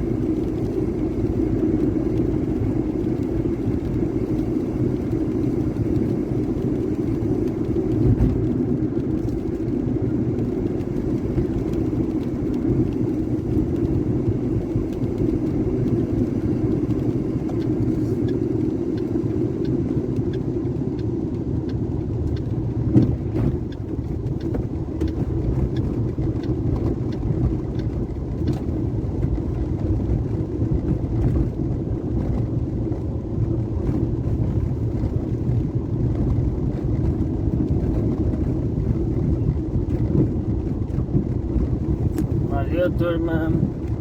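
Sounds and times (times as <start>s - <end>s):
low engine rumble: 0.0s - 44.0s.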